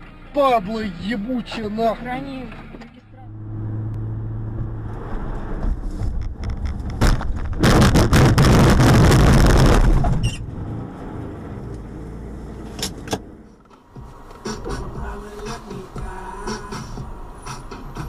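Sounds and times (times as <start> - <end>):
car engine running: 0.0 - 18.0
car crash bang: 6.9 - 10.5.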